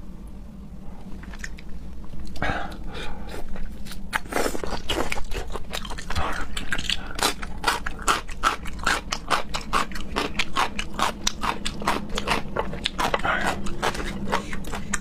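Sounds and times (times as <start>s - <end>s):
wet chewing and biting: 3.4s - 15.0s.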